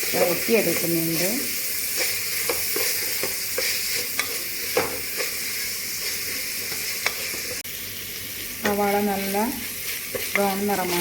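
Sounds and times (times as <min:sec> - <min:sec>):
spatula scraping a pan: 0:00.0 - 0:07.6, 0:09.8 - 0:11.0
onions sizzling in a pan: 0:00.0 - 0:11.0.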